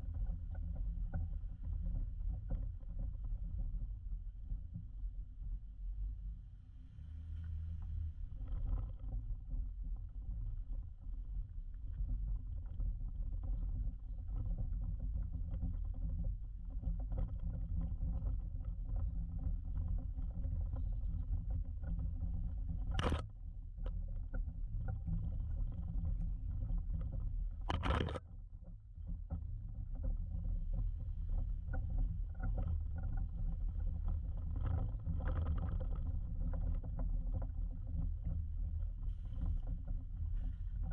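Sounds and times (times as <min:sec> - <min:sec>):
engine running low and steady: 0:00.0 - 0:28.2
small clicks and knocks: 0:07.4 - 0:40.9.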